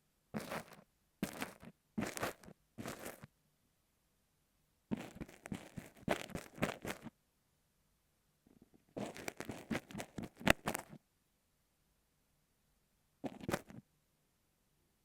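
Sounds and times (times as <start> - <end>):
ear pick scraping sand: 0.4 - 3.3, 4.9 - 7.1.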